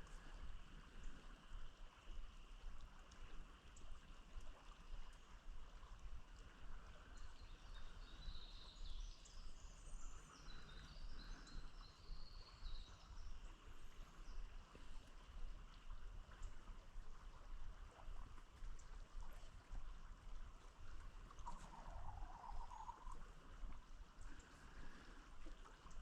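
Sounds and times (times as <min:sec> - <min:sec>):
flowing river water: 0:00.0 - 0:26.0
bird chirping: 0:07.2 - 0:13.6, 0:21.4 - 0:23.2.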